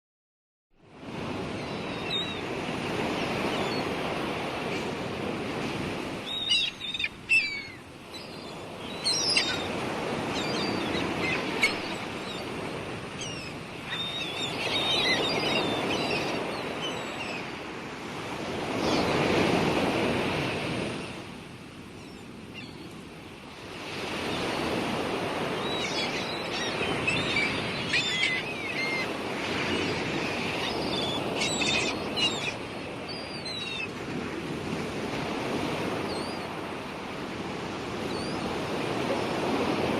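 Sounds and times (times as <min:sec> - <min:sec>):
sea waves washing onto shore: 0:00.9 - 0:39.9
gulls calling: 0:01.4 - 0:19.2, 0:23.9 - 0:34.0.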